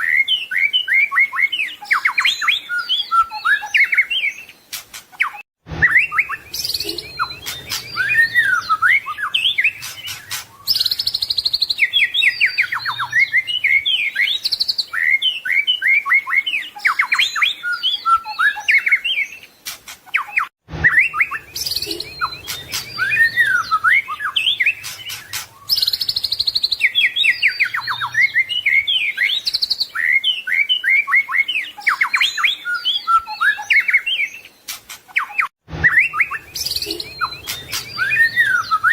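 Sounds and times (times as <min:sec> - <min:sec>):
bird singing trills and whistles: 0:00.0 - 0:38.9.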